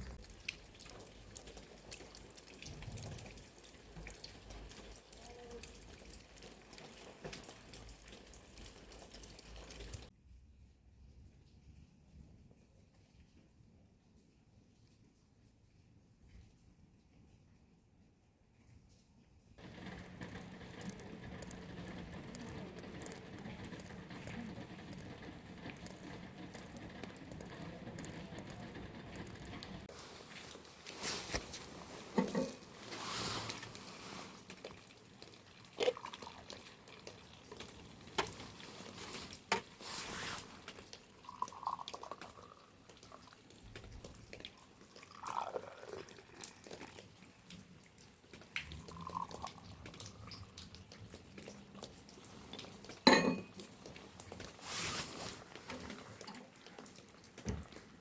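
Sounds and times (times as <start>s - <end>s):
water dripping and trickling: 0.0s - 10.2s, 19.6s - 58.0s.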